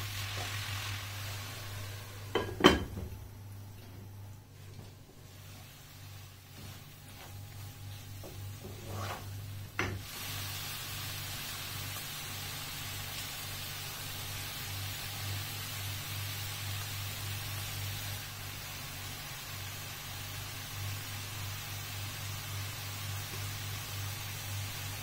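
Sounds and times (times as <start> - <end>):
food sizzling in a frying pan: 0.0 - 3.1, 5.0 - 25.0
spatula scraping through food: 6.5 - 9.5.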